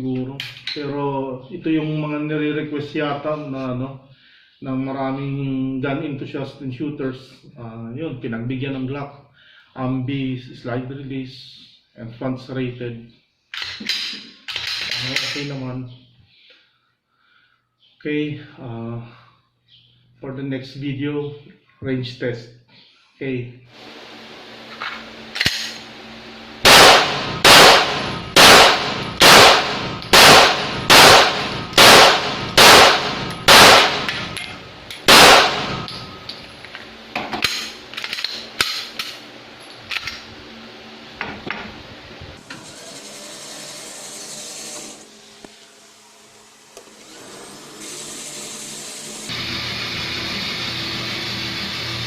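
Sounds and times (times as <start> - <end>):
fainter gunshots: 26.6 - 34.4, 35.0 - 35.9
pistol shots: 26.6 - 34.4, 35.0 - 35.9
hiss: 47.7 - 52.0.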